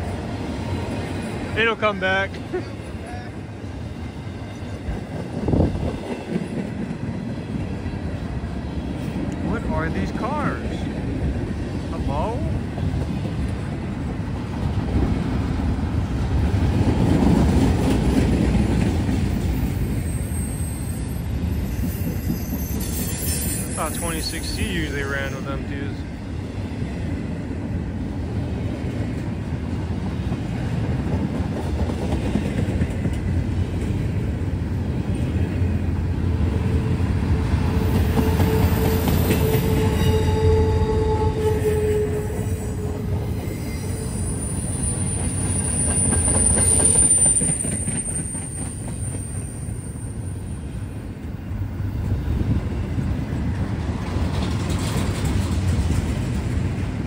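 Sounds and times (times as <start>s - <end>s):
freight train cars rumbling: 0.0s - 57.0s
mid-pitched wheel squeal: 19.8s - 24.0s
high-pitched wheel squeal: 19.9s - 24.3s, 38.2s - 50.5s.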